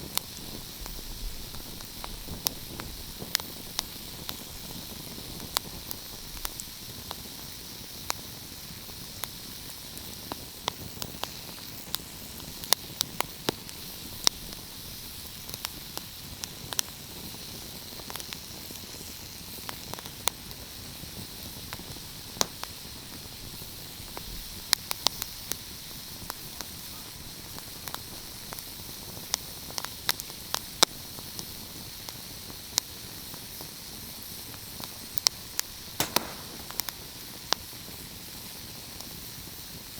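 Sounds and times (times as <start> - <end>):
wood fire crackling: 34.7 - 37.6.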